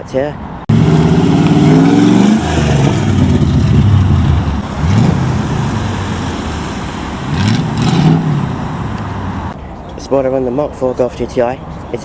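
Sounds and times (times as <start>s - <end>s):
car engine: 0.7s - 9.6s.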